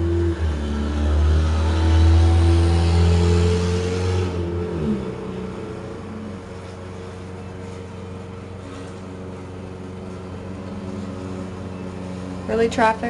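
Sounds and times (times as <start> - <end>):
vehicle engine passing: 0.0 - 13.0
steady low hum: 4.2 - 13.0.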